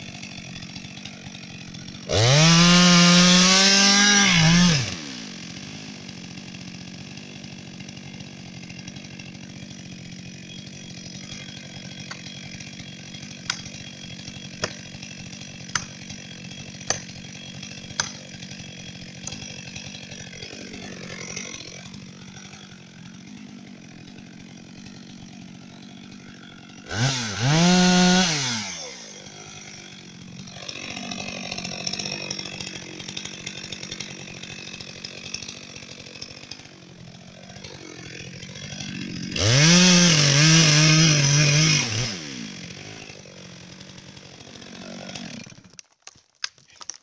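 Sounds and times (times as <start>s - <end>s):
chainsaw revving and idling: 0.0s - 45.8s
sharp knocks: 15.7s - 16.0s.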